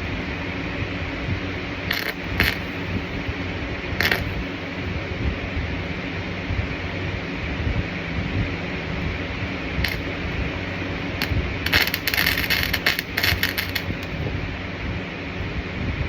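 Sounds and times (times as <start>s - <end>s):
electrical machine hum: 0.0s - 16.0s
welding arc crackling: 1.8s - 3.2s, 4.0s - 4.8s, 9.8s - 14.3s
sharp clicks: 1.9s - 2.7s, 4.0s - 4.4s, 11.2s - 14.2s.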